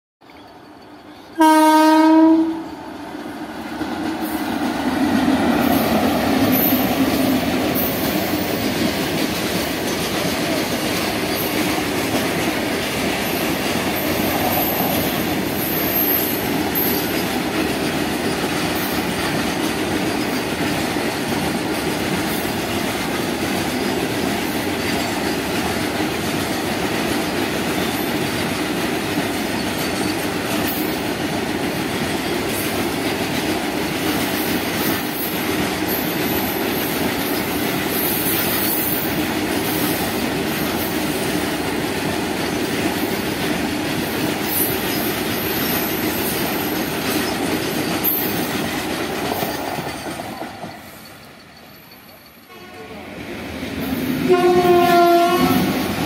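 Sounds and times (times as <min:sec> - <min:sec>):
locomotive horn blast: 0:01.4 - 0:02.8, 0:52.5 - 0:53.0, 0:54.2 - 0:55.9
wheels clattering over rails: 0:42.0 - 0:52.4.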